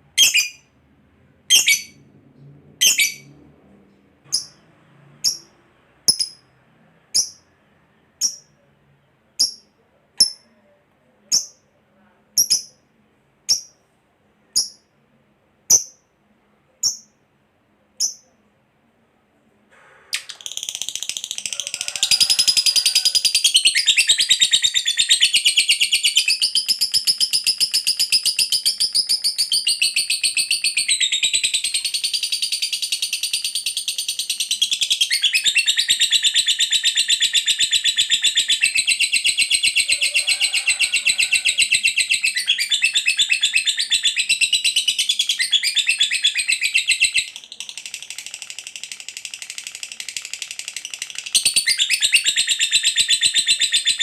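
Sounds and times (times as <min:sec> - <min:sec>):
lovebird chattering trill: 0:02.8 - 0:03.3, 0:06.1 - 0:06.4.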